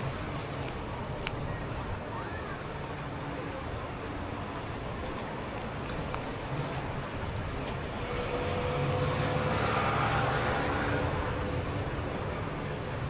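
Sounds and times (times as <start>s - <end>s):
outdoor background noise: 0.0s - 13.0s
motor vehicle passing: 7.9s - 12.2s.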